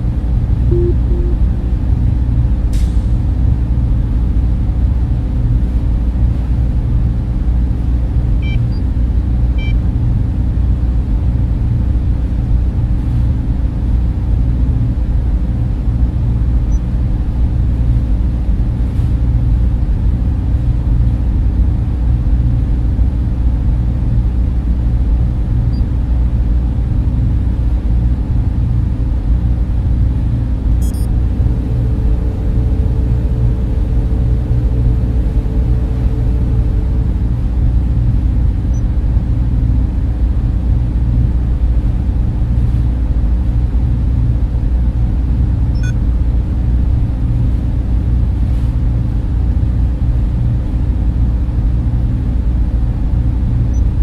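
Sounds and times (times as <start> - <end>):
cooling fans humming: 0.0 - 2.4, 22.2 - 42.7.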